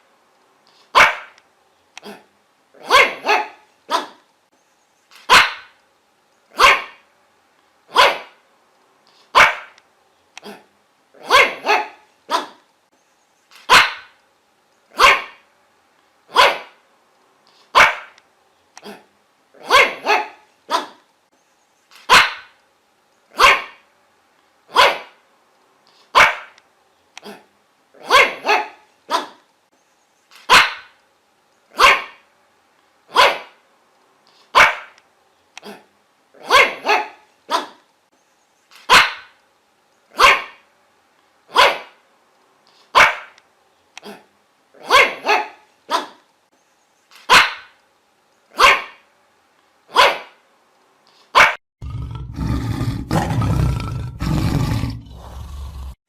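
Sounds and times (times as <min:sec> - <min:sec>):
dog barking: 0:01.0 - 0:01.4, 0:02.8 - 0:04.2, 0:05.3 - 0:05.8, 0:06.6 - 0:07.0, 0:07.9 - 0:08.4, 0:09.3 - 0:09.8, 0:11.2 - 0:12.6, 0:13.7 - 0:14.2, 0:15.0 - 0:15.4, 0:16.3 - 0:16.8, 0:17.7 - 0:18.2, 0:19.6 - 0:21.0, 0:22.1 - 0:22.6, 0:23.4 - 0:23.8, 0:24.7 - 0:25.2, 0:26.1 - 0:26.6, 0:28.0 - 0:29.4, 0:30.5 - 0:31.0, 0:31.8 - 0:32.2, 0:33.1 - 0:33.6, 0:34.5 - 0:35.0, 0:36.4 - 0:37.8, 0:38.9 - 0:39.4, 0:40.2 - 0:40.6, 0:41.5 - 0:42.0, 0:42.9 - 0:43.4, 0:44.8 - 0:46.2, 0:47.3 - 0:47.8, 0:48.6 - 0:49.0, 0:49.9 - 0:50.4, 0:51.3 - 0:51.6.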